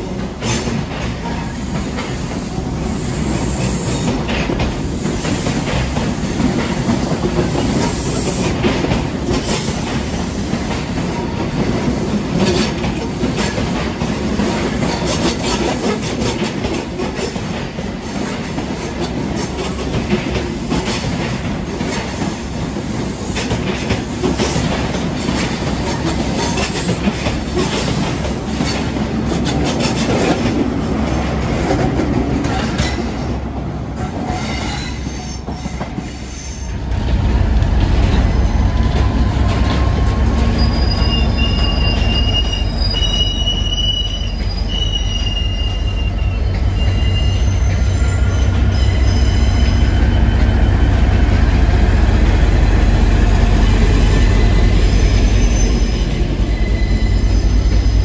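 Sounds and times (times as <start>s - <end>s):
diesel locomotive engine rumbling: 0.0s - 58.0s
train wheels clattering: 0.0s - 58.0s
wagon wheels squealing: 40.4s - 50.9s, 54.1s - 58.0s.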